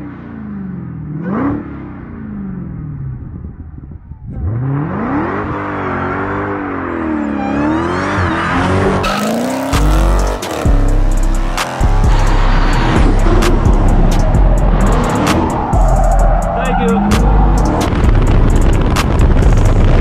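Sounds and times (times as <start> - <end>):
car engine revving hard: 0.0 - 2.8, 4.3 - 20.0
car burnout: 0.0 - 20.0
tire squeal: 5.1 - 19.2.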